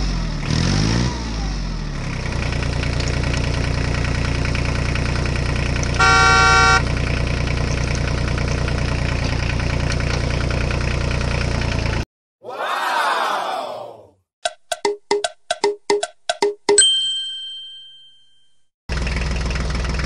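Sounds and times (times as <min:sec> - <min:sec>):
vehicle engine idling: 0:02.1 - 0:12.0, 0:18.9 - 0:20.0
horn honk: 0:06.0 - 0:06.9.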